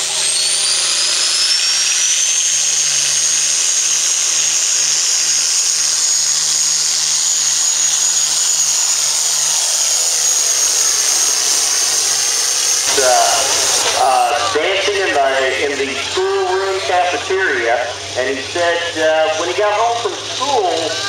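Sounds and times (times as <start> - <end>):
diesel tractor engine under load: 0.0 - 21.0
high turbo whine: 0.0 - 21.0.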